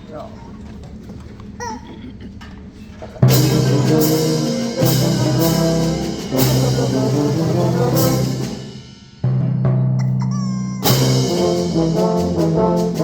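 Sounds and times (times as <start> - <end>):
brass band playing: 3.2 - 9.6, 10.8 - 13.0.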